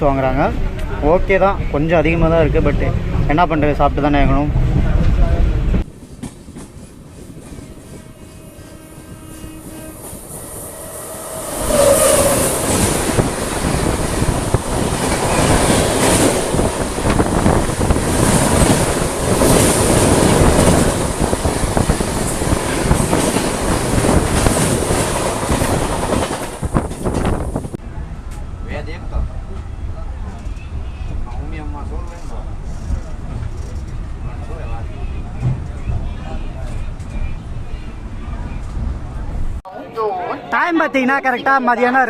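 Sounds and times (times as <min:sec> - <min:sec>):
train wheels clattering on track: 0:05.8 - 0:08.7, 0:11.7 - 0:27.7, 0:31.9 - 0:34.1.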